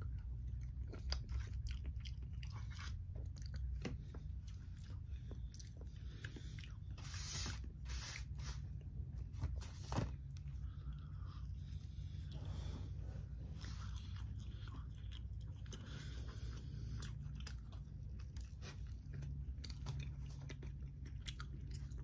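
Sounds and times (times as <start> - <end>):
close chewing and crunching: 0.0 - 22.0
steady low hum: 0.0 - 22.0.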